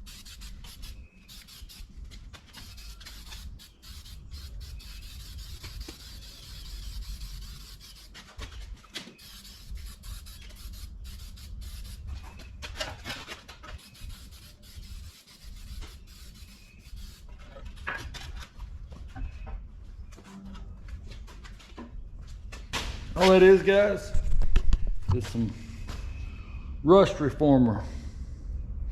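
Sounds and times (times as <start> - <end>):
brush rubbing on sheet metal: 0.0 - 12.4, 13.5 - 17.7
low steady hum: 18.4 - 28.9.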